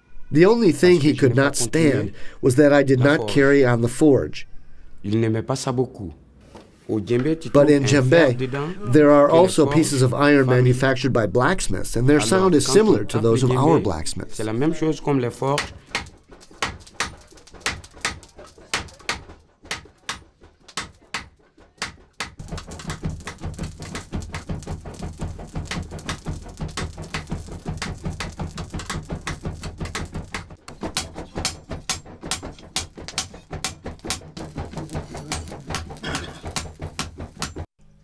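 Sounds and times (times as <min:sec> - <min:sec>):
hand percussion strikes: 0:15.6 - 0:37.6
djembe rhythm: 0:22.2 - 0:37.6
deep drum: 0:22.2 - 0:37.7.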